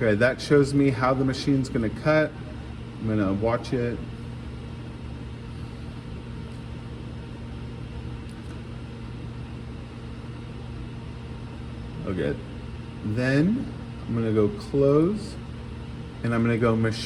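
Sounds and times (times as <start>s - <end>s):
equipment humming: 0.0s - 17.0s.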